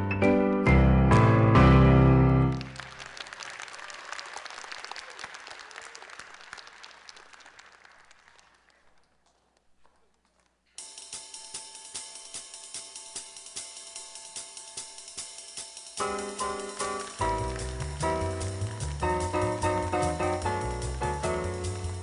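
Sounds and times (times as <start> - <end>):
audience applause: 2.4 - 10.3, 16.0 - 22.0
drums and cymbals: 10.8 - 22.0.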